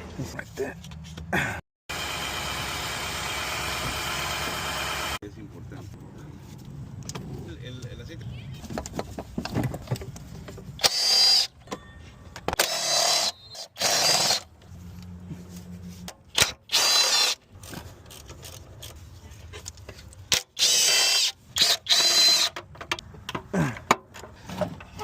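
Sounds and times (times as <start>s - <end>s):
power tool whining bursts: 12.6s - 14.4s.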